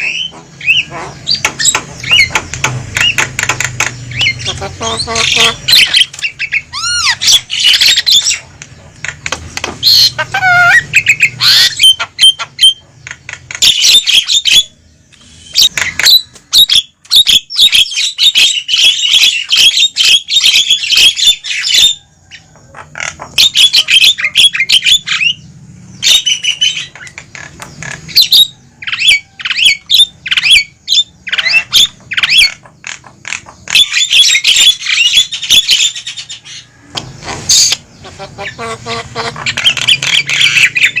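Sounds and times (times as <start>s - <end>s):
myna squawking and whistling: 0.0s - 2.3s, 4.1s - 8.5s, 9.8s - 12.9s, 28.1s - 36.7s, 37.5s - 41.0s.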